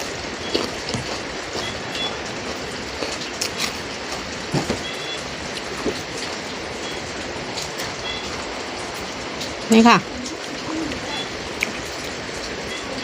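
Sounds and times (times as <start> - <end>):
eating clicks and crunches: 0.0 - 6.6, 10.2 - 12.6
rain falling: 0.0 - 13.0.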